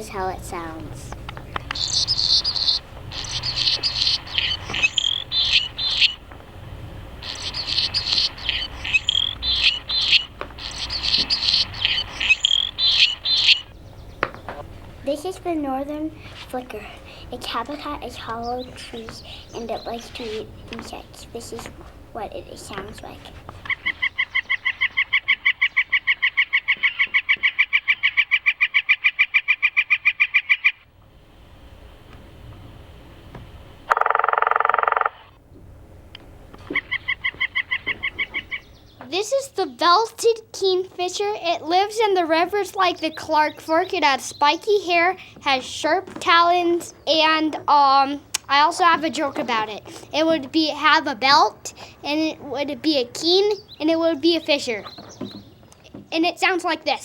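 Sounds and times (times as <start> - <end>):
hummingbird chittering chips: 0.0 - 25.2
woodpecker call: 1.2 - 14.7, 16.9 - 21.7, 22.9 - 30.8, 33.9 - 35.4, 36.6 - 39.1.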